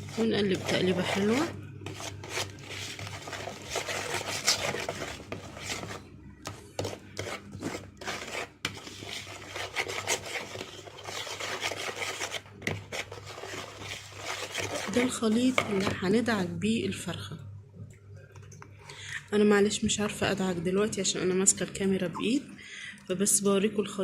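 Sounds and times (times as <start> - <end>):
utensil scraping a bowl: 0.0 - 16.1.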